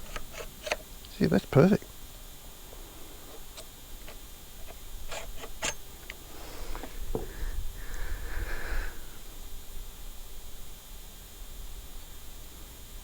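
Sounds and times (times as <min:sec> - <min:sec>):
clicks and knocks of metal parts: 0:00.0 - 0:01.2, 0:03.3 - 0:06.2.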